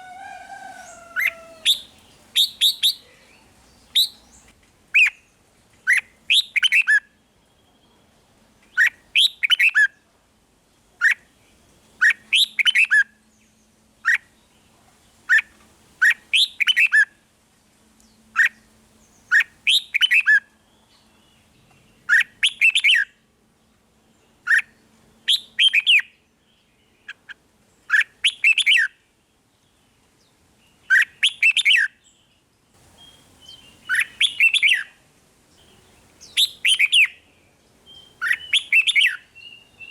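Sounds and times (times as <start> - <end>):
bird singing in quick phrases: 0.7 - 8.1, 8.7 - 9.9, 12.0 - 13.0, 15.3 - 17.0, 18.4 - 23.1, 24.4 - 27.3, 27.9 - 29.0, 30.6 - 35.0, 35.6 - 39.9.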